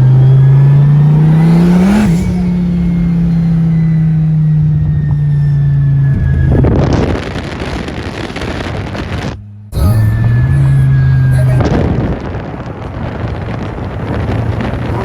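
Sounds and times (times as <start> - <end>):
car engine droning: 0.0 - 15.0
rough rushing noise: 6.5 - 15.0.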